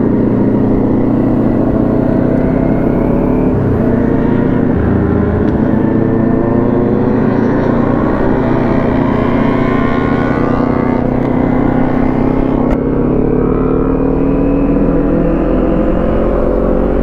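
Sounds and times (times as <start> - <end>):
motorcycle engine revs rising: 0.0 - 17.0.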